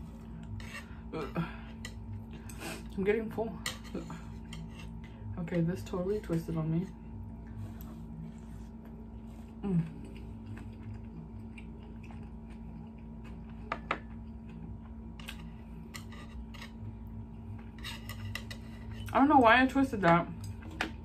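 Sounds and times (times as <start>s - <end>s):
faint steady hum: 0.0s - 21.0s
soft chewing: 7.3s - 19.1s.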